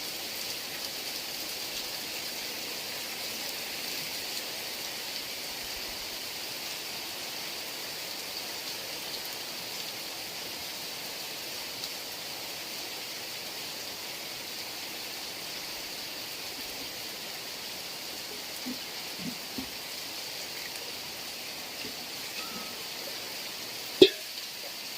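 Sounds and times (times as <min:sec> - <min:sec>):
heavy rain falling: 0:00.0 - 0:24.9
drops plopping: 0:24.0 - 0:24.3.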